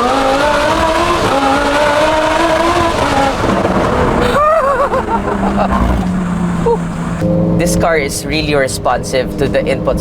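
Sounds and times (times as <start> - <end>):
sports car engine revving: 0.0 - 10.0.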